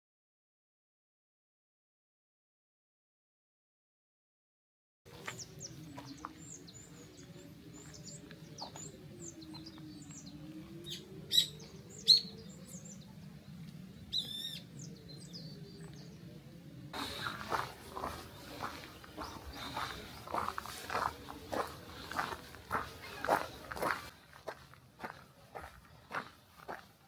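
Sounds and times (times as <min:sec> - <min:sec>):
small birds chirping: 0:05.1 - 0:27.0
warbling bird call: 0:09.6 - 0:12.8.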